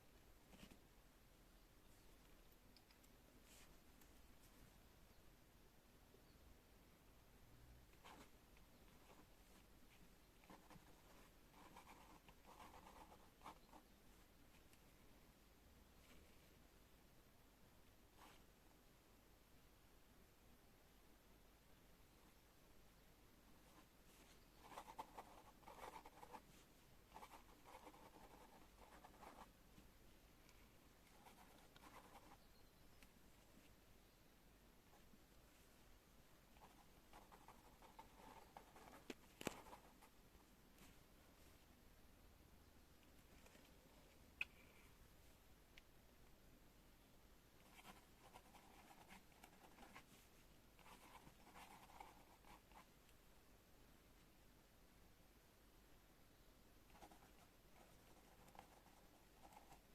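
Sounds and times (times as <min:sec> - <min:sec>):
pen scratching on paper: 0:10.5 - 0:13.8, 0:24.5 - 0:26.4, 0:27.1 - 0:29.5, 0:31.1 - 0:32.4, 0:36.6 - 0:40.0, 0:47.6 - 0:50.1, 0:50.8 - 0:52.8, 0:56.9 - 0:59.9.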